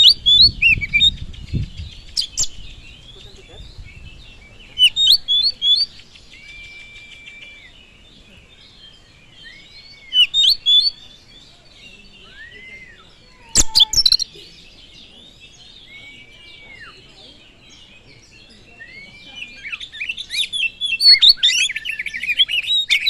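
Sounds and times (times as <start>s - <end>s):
bird chirps and trills: 0.0s - 23.0s
long whistled bird notes: 3.8s - 14.7s.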